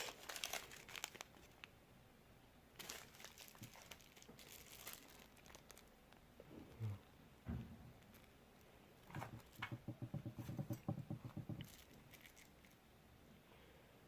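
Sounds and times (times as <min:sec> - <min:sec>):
tool knock: 0:09.1 - 0:11.6.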